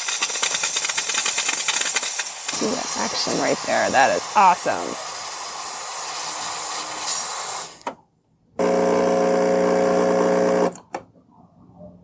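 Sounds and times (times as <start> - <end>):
steam wand hissing: 0.0 - 7.9
espresso machine electric buzz: 8.6 - 10.8.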